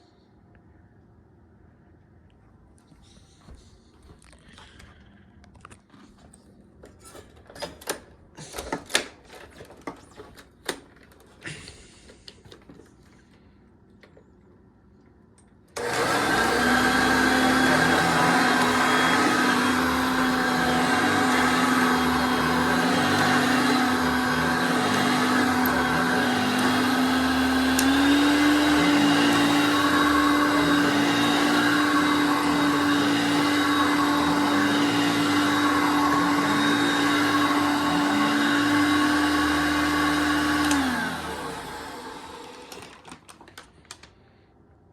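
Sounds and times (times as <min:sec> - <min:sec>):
vacuum cleaner running: 0:15.8 - 0:43.3.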